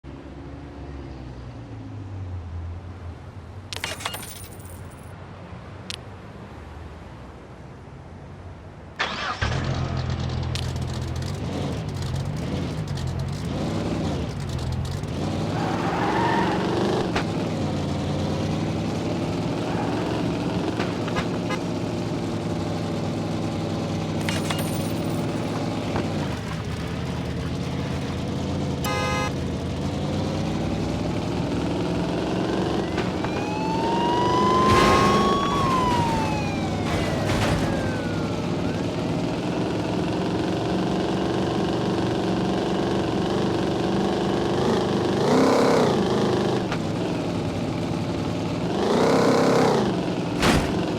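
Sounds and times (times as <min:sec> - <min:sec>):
car engine revving: 0:09.6 - 0:50.9
short beep: 0:28.9 - 0:29.3
rising and falling whine: 0:32.6 - 0:39.0.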